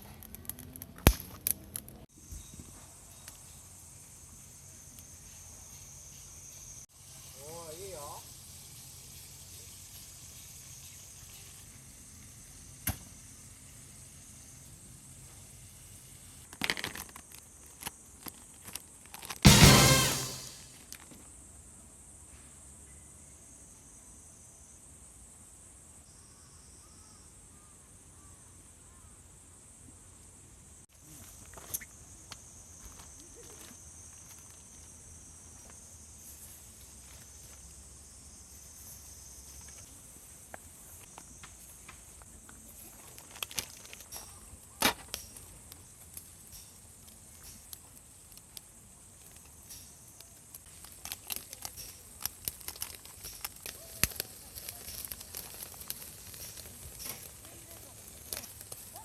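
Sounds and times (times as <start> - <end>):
high drone: 19.5 - 20.7.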